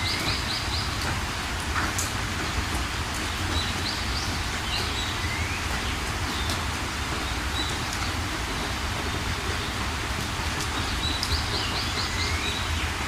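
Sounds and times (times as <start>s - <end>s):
rain hiss: 0.0s - 13.0s
birds chirping: 10.7s - 13.0s.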